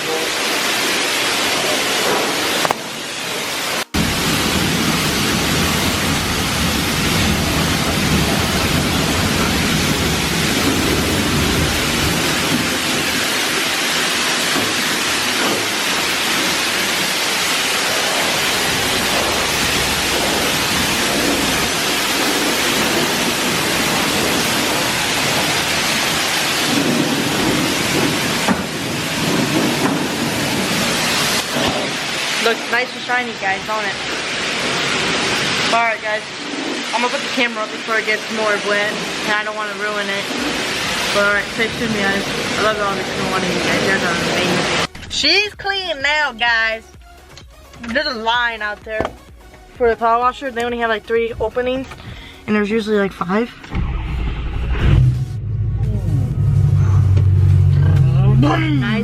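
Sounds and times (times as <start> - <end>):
pressure washer spraying water: 0.0 - 45.4.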